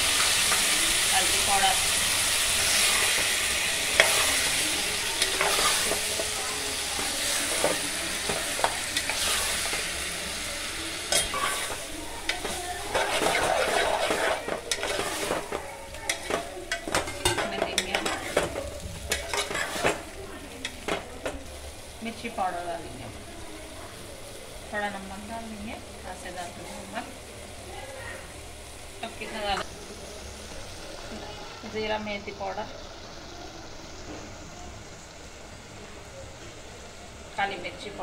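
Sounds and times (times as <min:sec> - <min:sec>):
tomatoes sizzling in hot oil: 0:00.0 - 0:38.0
metal spoon scraping pot: 0:05.2 - 0:06.3, 0:11.1 - 0:18.4, 0:19.1 - 0:20.0.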